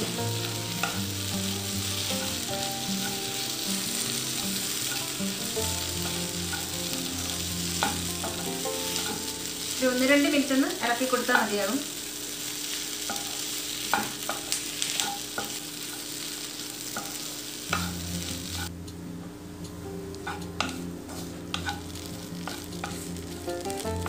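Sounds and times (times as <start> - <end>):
spatula scraping and tapping a pan: 0.0 - 1.1, 2.0 - 9.4, 13.0 - 16.2, 16.8 - 18.7, 20.2 - 24.0
prawns sizzling in a pan: 0.0 - 18.7, 20.1 - 24.0.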